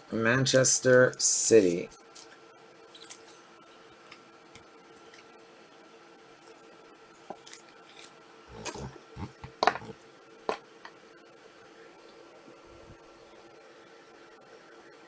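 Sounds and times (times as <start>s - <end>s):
faint steady hum: 0.0s - 15.0s
taps and rustles: 8.6s - 10.6s.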